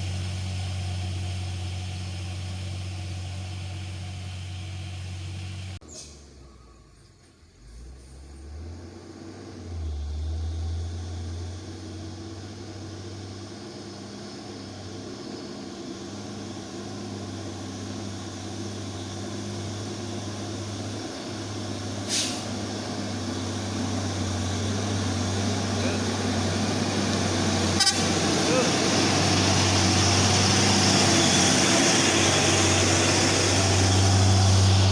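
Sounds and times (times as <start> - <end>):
truck diesel engine labouring: 0.0 - 34.9
brief hiss: 22.0 - 22.6.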